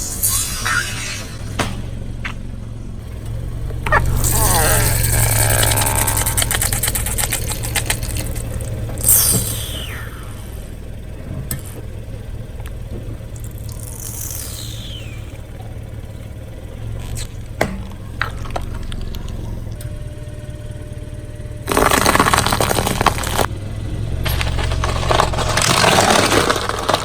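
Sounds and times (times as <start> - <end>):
car engine idling: 0.0 - 27.0
tyre crushing something: 21.7 - 23.5, 24.4 - 27.0.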